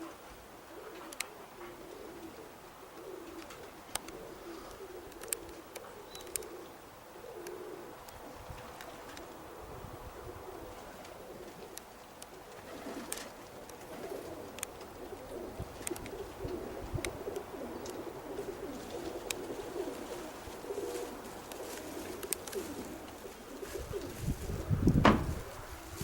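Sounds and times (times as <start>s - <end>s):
pigeons cooing: 0.0s - 26.0s
faint clicks: 3.0s - 6.5s, 22.2s - 22.6s.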